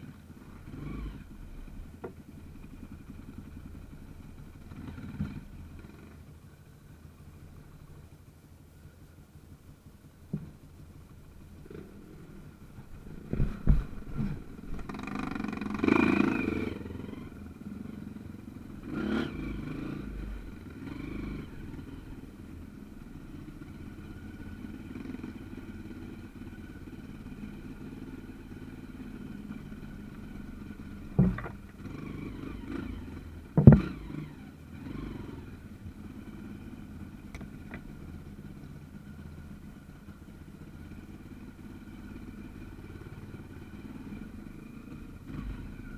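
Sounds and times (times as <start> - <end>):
trail motorcycle engine: 0.0 - 45.9
sharp knocks and clatter: 13.3 - 15.2, 31.1 - 31.8, 33.6 - 34.0.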